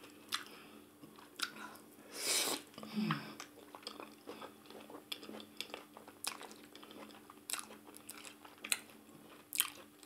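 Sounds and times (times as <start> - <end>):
faint steady hum: 0.0 - 10.0
close chewing and biting: 3.4 - 10.0.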